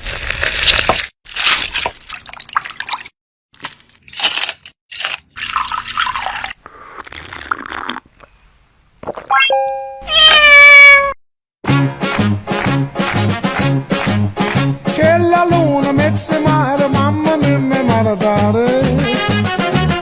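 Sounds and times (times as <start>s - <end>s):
cat meowing: 10.1s - 11.2s.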